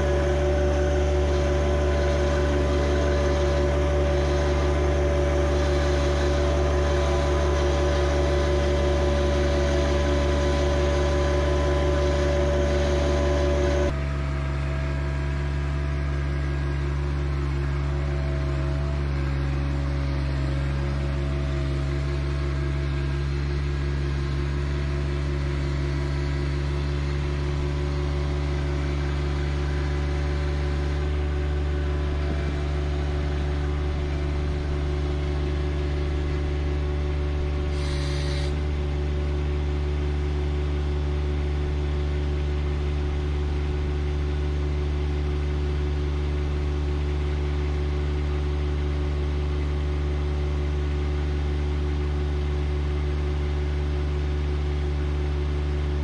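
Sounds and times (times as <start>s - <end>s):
tractor diesel engine running: 0.0s - 56.0s
brief hiss: 37.7s - 38.5s.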